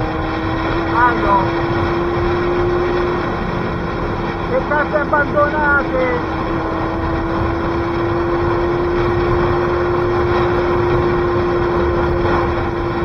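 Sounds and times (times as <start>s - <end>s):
motorcycle engine cruising: 0.0s - 13.0s
wind noise on microphone: 6.1s - 13.0s.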